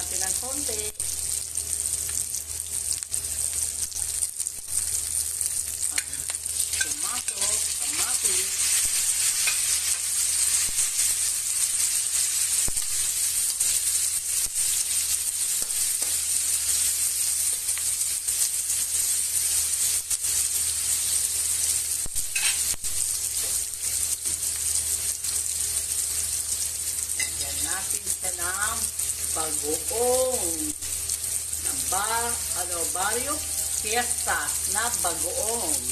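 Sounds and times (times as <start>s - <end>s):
food sizzling in oil: 0.0s - 35.9s
spatula scraping a wok: 6.6s - 24.4s.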